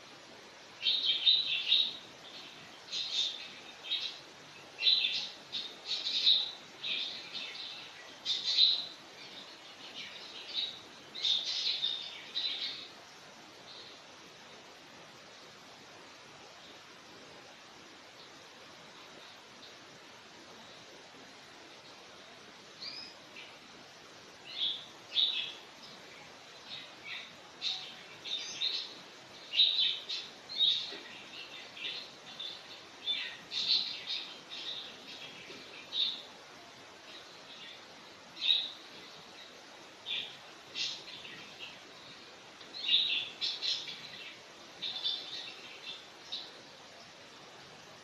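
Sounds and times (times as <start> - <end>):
small birds chirping: 0.0 - 48.0
steady hiss: 0.0 - 48.0.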